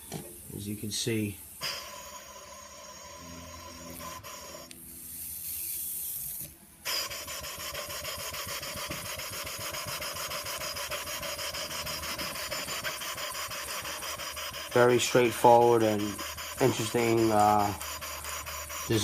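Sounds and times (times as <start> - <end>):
air hissing from hose: 0.0 - 19.0
model steam engine running: 1.7 - 4.7, 6.9 - 19.0.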